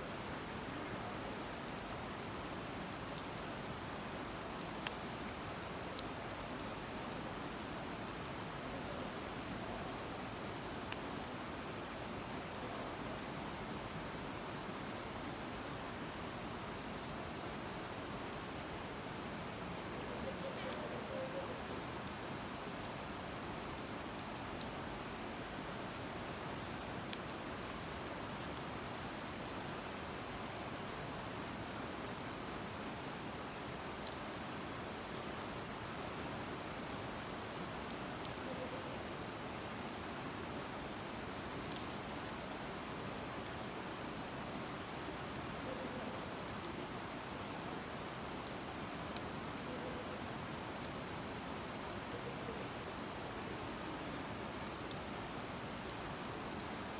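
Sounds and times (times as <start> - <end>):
wood fire crackling: 0.2 - 49.7, 50.3 - 56.9.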